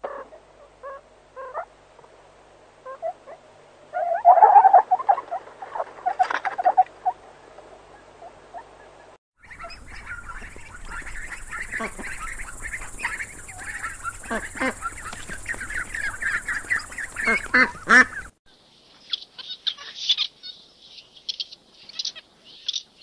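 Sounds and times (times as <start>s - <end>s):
ducklings peeping: 7.9s - 23.0s
lemurs calling: 9.4s - 18.3s, 19.0s - 23.0s.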